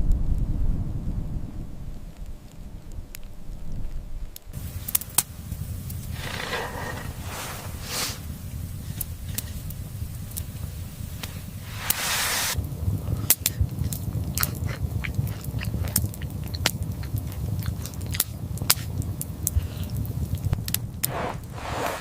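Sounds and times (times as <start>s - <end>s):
short hiss: 5.9s - 8.5s, 11.2s - 12.6s, 21.1s - 22.0s.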